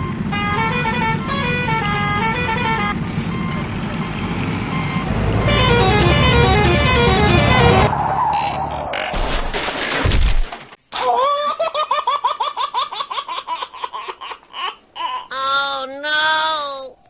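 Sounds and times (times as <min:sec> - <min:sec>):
horn-like electronic tune: 0:00.0 - 0:03.0, 0:05.4 - 0:08.6
cartoon vehicle engine rumble: 0:00.0 - 0:09.5.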